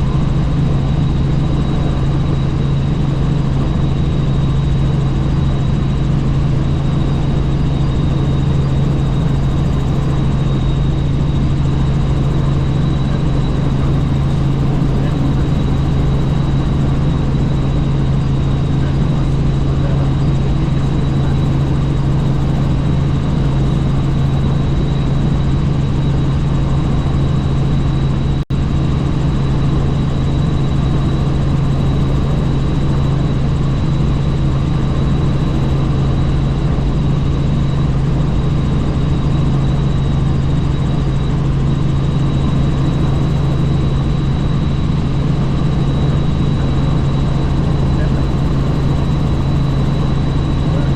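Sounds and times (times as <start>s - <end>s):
helicopter rotor and engine drone: 0.0s - 50.9s.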